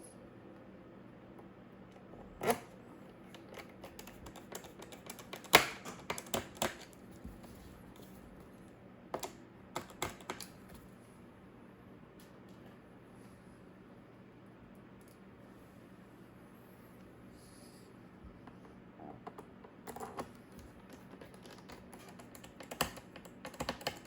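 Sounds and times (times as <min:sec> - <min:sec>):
laptop keyboard typing: 0:03.4 - 0:07.0, 0:09.2 - 0:10.5, 0:19.8 - 0:24.0.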